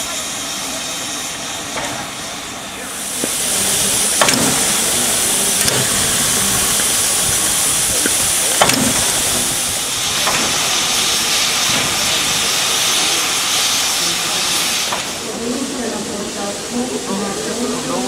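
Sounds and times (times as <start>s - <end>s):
steam locomotive venting steam: 0.0s - 18.0s
sharp clicks or knocks: 8.0s - 9.2s.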